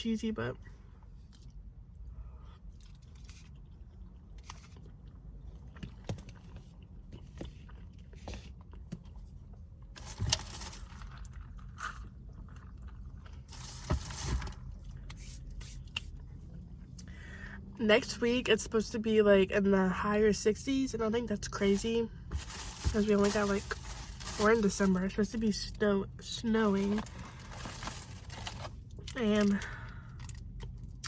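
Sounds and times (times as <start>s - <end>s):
chewing: 1.2s - 9.2s
scraping and rustling: 22.3s - 24.8s.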